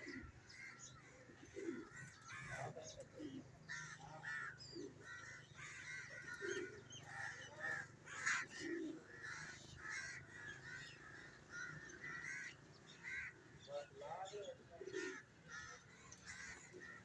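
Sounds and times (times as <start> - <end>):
crows cawing: 0.0 - 2.9, 3.6 - 17.0.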